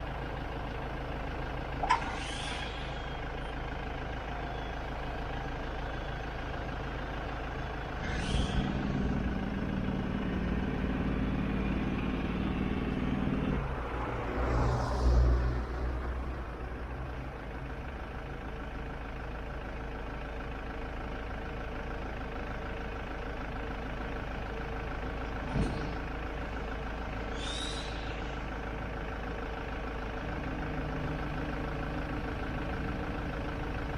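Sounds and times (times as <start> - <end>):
diesel engine running: 0.0 - 33.9
short hisses: 1.8 - 3.4, 8.0 - 9.4, 27.3 - 28.6.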